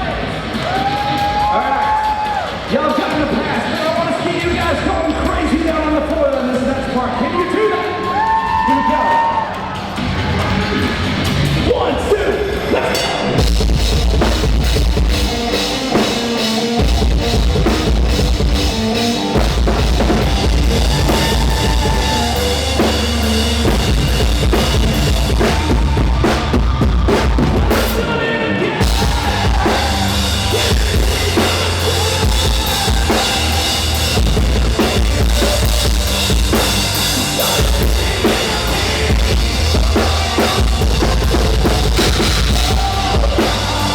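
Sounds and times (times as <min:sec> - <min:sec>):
heavy rock music: 0:00.0 - 0:43.9
pounding bass drum: 0:13.3 - 0:28.2, 0:28.8 - 0:43.9.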